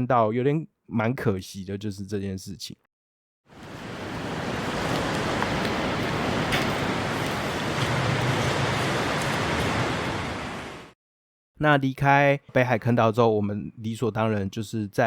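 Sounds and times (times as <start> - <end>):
sea water surging and lapping: 3.5 - 11.0.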